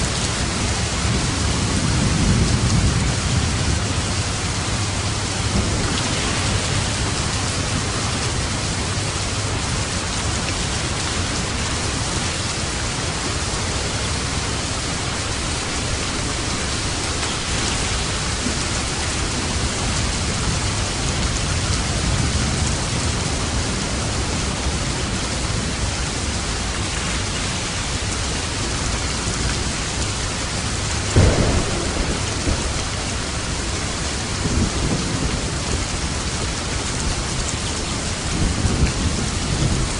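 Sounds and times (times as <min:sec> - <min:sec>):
thunderclap: 0:00.0 - 0:09.1, 0:31.0 - 0:36.0
heavy rain falling: 0:00.0 - 0:39.9
thunder rumbling: 0:00.0 - 0:39.9.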